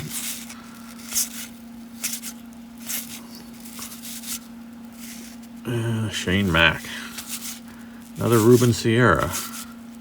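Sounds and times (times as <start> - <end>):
cards sliding papery swish: 0.0 - 5.4.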